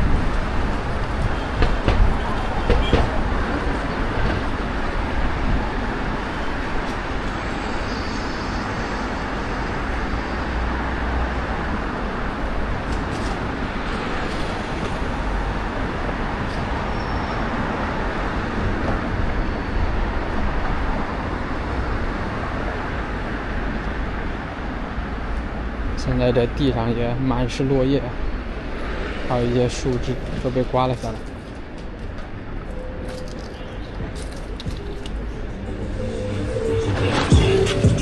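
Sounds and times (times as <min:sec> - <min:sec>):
gusty wind buffeting microphone: 0:00.0 - 0:26.0
street traffic: 0:00.0 - 0:38.0.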